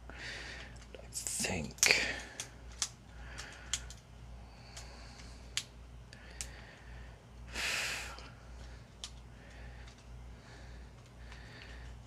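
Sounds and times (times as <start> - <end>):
plastic parts clicking: 1.8 - 4.0.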